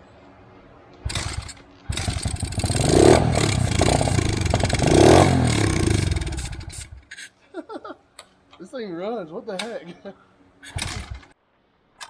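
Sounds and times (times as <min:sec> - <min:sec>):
small engine running and revving: 0:01.1 - 0:07.0.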